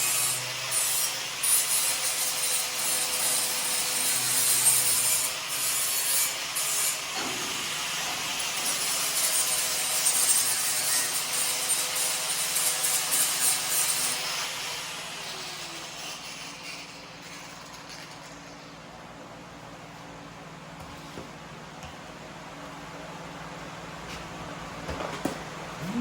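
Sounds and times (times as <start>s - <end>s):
rasping hissing metalwork: 0.0s - 18.4s.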